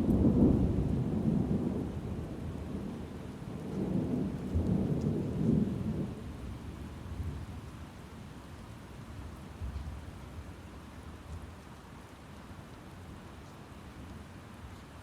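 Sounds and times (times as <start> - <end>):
low rolling thunder: 0.0 - 7.5.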